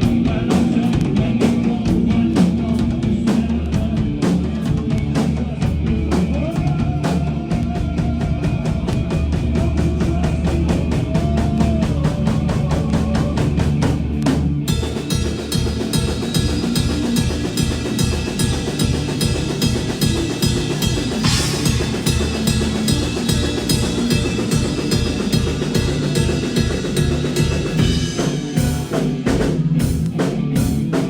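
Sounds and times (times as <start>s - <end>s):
rock band playing: 0.0s - 31.0s
cymbal crash: 14.7s - 29.2s.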